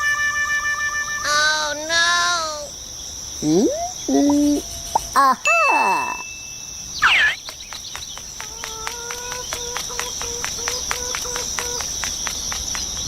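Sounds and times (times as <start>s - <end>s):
crickets chirping: 0.0s - 13.0s
short falling whistle: 5.5s - 7.4s.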